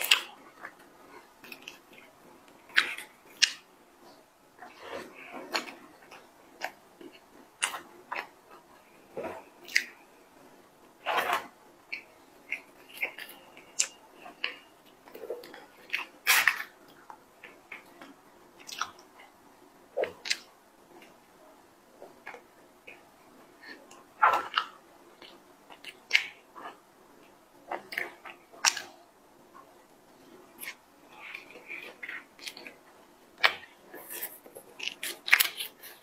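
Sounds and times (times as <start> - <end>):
person chewing cookie: 10.8 - 19.4, 22.0 - 29.0, 29.6 - 36.0.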